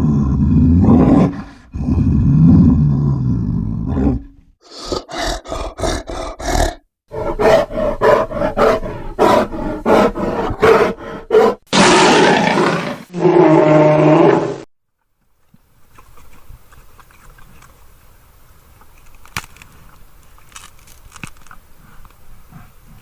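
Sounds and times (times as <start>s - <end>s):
bear grunting: 0.0s - 14.6s
bear roaring: 0.0s - 14.7s.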